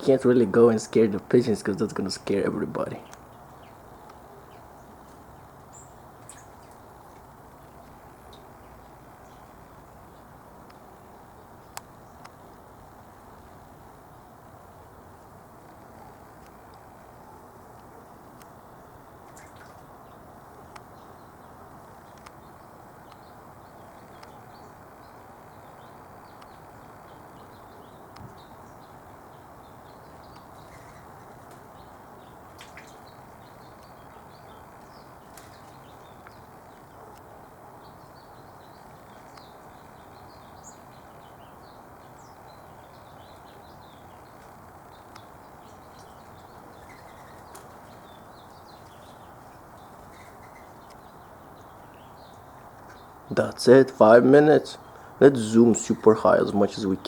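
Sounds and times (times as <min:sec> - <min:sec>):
small birds chirping: 0:00.0 - 0:57.0
steady background hiss: 0:00.0 - 0:57.0
faint clicks: 0:22.0 - 0:23.3, 0:24.0 - 0:24.4.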